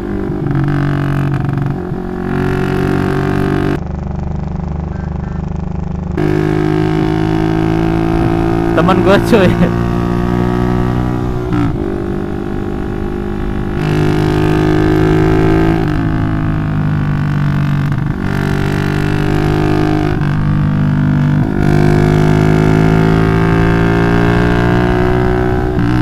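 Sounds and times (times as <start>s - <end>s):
motorcycle engine exhaust drone: 0.0s - 26.0s.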